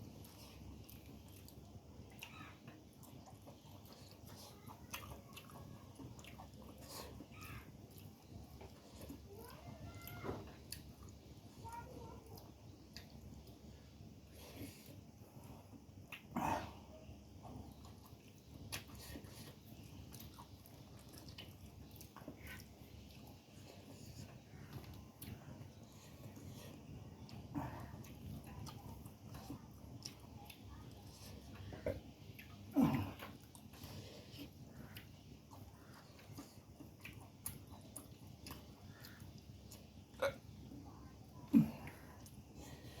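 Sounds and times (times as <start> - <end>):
small crisp clicks and crackles: 0.0 - 16.3
person chewing food: 0.0 - 43.0.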